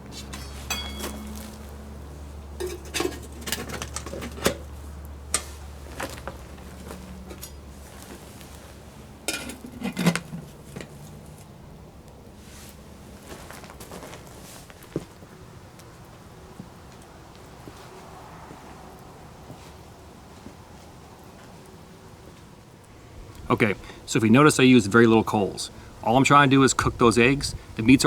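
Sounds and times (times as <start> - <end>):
metal cookware clattering: 0.1 - 1.8, 2.5 - 7.8, 9.2 - 11.0.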